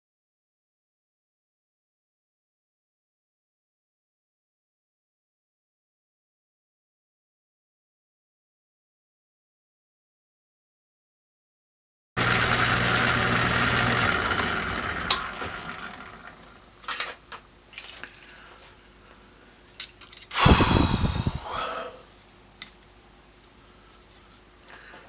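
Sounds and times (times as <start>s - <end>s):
machine motor running: 12.2s - 17.1s
metal parts and tools clinking: 16.8s - 18.5s, 19.7s - 20.4s.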